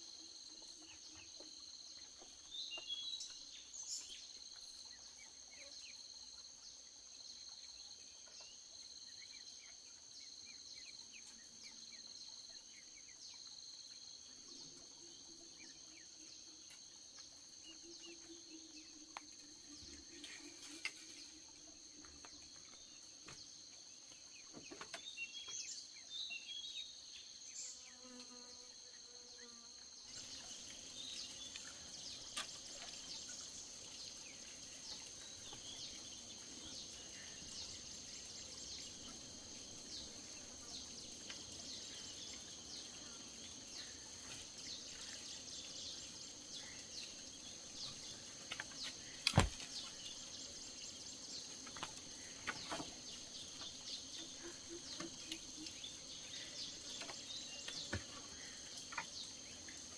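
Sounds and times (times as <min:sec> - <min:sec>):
insects trilling: 0:00.0 - 0:59.9
lower pulsing insect chirp: 0:00.0 - 0:59.9.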